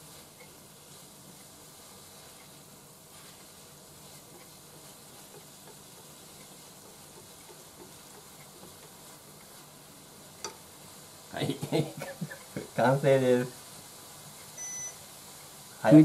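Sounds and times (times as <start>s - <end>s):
food sizzling in a pan: 0.0s - 16.0s
chopsticks ticking while stirring: 0.3s - 10.7s.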